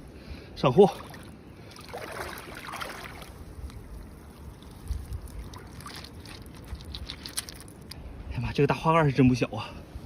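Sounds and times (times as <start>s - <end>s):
seawater sloshing among rocks: 0.9s - 7.9s.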